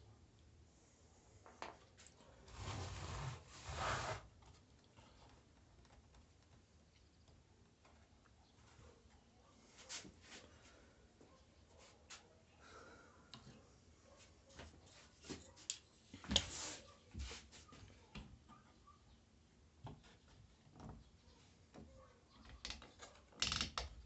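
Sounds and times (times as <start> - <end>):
small tools clicking and tapping: 22.4 - 24.0.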